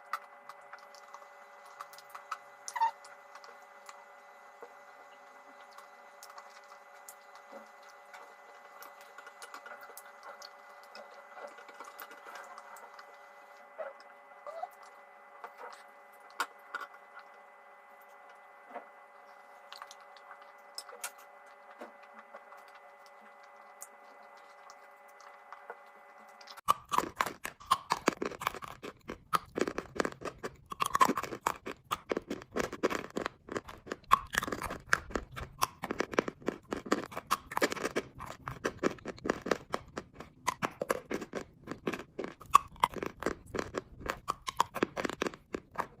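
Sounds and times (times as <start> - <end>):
chewing chalk crunching: 0.0 - 4.0, 5.5 - 17.4, 18.0 - 46.0
faint steady hum: 0.0 - 46.0.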